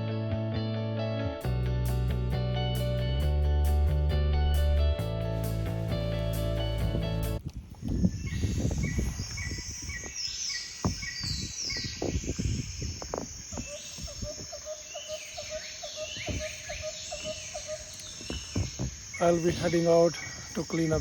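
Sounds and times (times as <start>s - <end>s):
birds calling: 7.8s - 21.0s
bird chirps: 7.9s - 21.0s
low repeated bird call: 8.1s - 21.0s.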